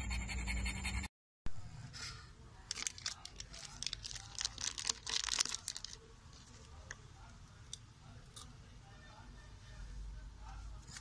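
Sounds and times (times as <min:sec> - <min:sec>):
plastic wrapper crinkling and tearing: 0:02.7 - 0:06.7.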